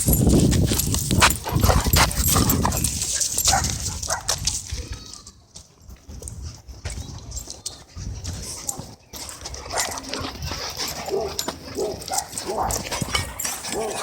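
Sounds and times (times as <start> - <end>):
dogs barking while fighting: 1.2 - 4.4, 9.6 - 14.0.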